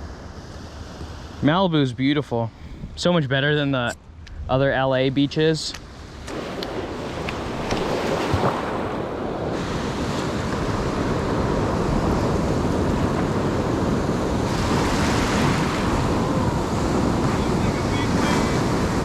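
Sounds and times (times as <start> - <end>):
wind on microphone: 2.5 - 3.1, 5.8 - 19.0
surf breaking on beach: 6.3 - 19.0.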